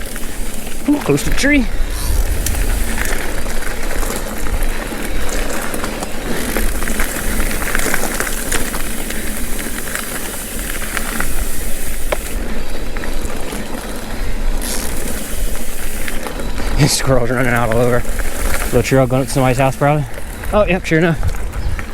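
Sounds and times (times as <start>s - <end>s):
tyre noise on dirt: 0.0s - 21.9s
wind on microphone: 1.8s - 4.8s, 21.2s - 21.9s
bike clicks and rattles: 4.0s - 21.9s.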